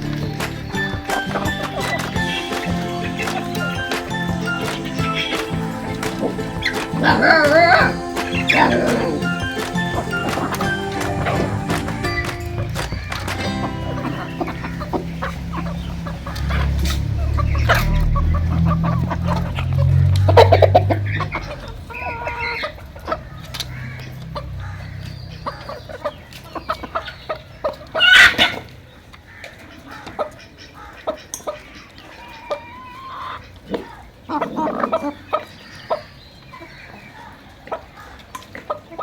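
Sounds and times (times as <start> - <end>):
chickens clucking: 0.0 - 39.0.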